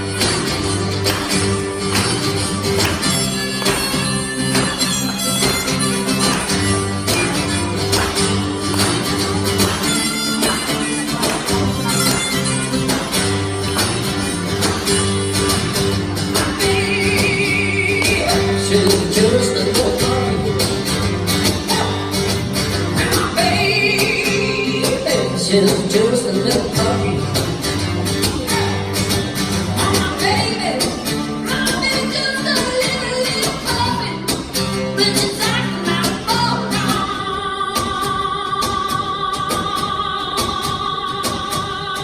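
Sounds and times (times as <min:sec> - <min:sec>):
strummed guitar: 0:00.0 - 0:42.0.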